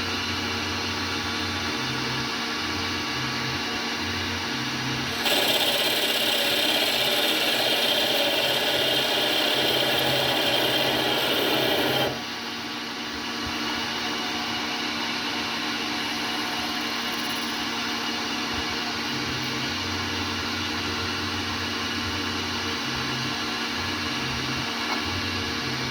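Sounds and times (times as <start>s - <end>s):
machine running hum: 0.0s - 25.9s
lathe tool scraping metal: 5.0s - 12.3s.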